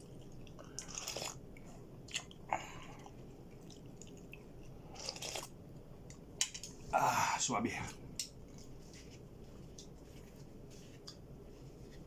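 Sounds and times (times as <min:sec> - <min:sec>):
person chewing: 0:00.0 - 0:05.6
wet mouth sounds: 0:00.5 - 0:01.4, 0:03.0 - 0:05.5.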